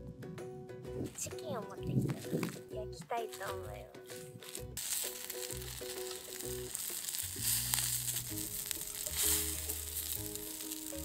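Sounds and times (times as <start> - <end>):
background music: 0.0 - 11.0
chicken sizzling on griddle: 4.8 - 11.0.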